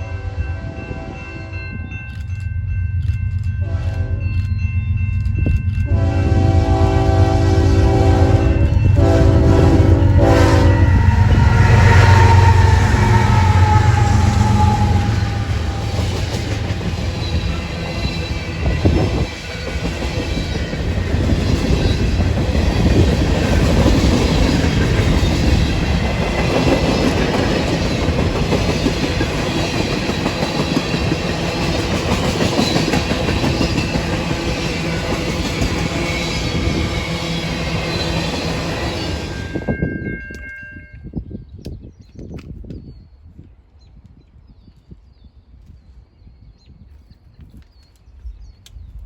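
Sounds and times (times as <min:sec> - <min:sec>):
train wheels clattering over rails: 0:08.1 - 0:39.5.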